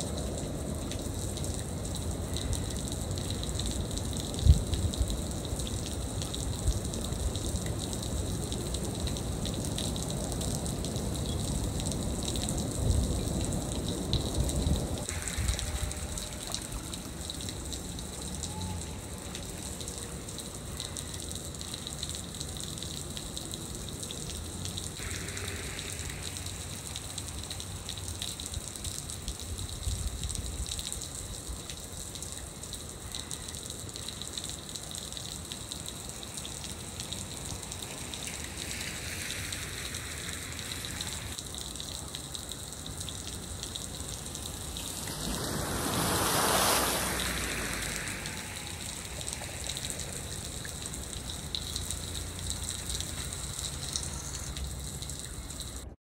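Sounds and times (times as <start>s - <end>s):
steady rain falling: 0.0s - 56.0s
whooshing swell: 44.4s - 51.0s.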